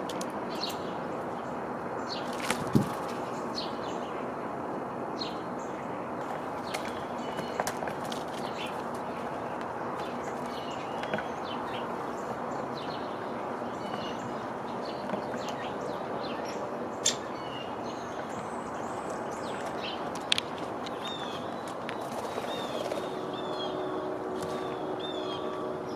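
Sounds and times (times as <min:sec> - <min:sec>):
small birds chirping: 0:05.2 - 0:25.9.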